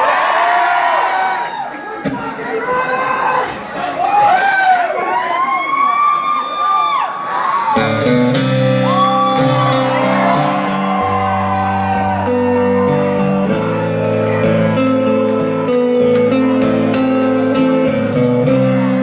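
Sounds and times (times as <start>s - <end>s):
crowd whooping and cheering: 0.0s - 2.1s, 4.0s - 17.6s
live guitar chords: 7.8s - 19.0s.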